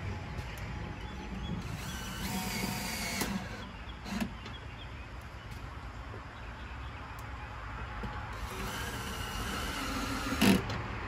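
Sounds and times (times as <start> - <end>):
drill driving a screw: 1.6 - 4.3, 8.4 - 10.7.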